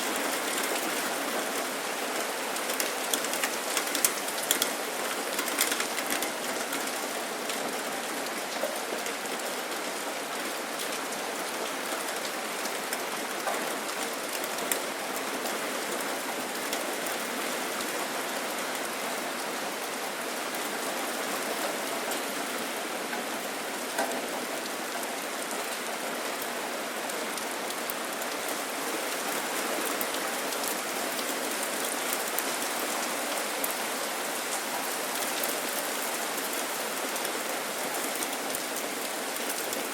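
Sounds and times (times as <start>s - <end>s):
raindrops hitting surfaces: 0.0s - 39.9s
steady rain falling: 0.0s - 39.9s.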